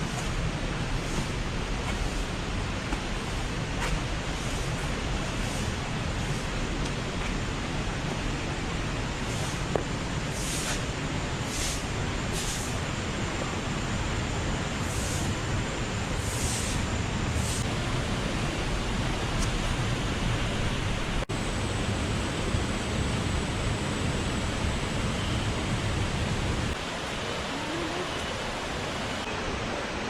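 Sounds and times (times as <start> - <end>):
water rushing: 17.3 - 30.0.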